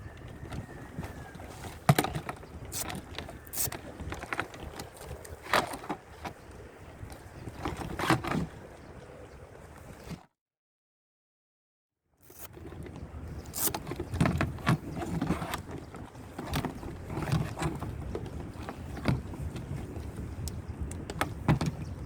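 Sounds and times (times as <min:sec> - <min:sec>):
plastic canoe hull clicks and knocks: 0:00.5 - 0:06.4, 0:13.7 - 0:22.0.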